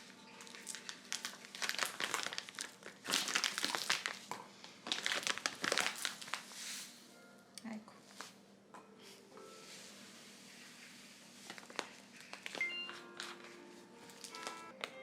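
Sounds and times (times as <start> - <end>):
crinkling and crumpling: 0.0 - 7.0, 10.5 - 15.0.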